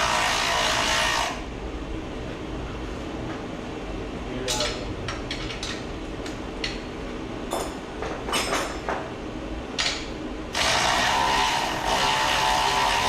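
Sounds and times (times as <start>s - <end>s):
metal tools clicking and clanking: 4.4s - 5.9s.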